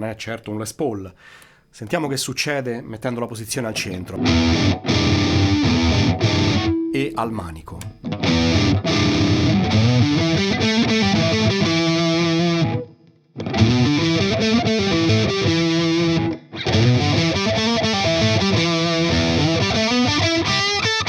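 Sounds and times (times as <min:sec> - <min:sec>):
distorted electric guitar riff: 0:04.2 - 0:21.0.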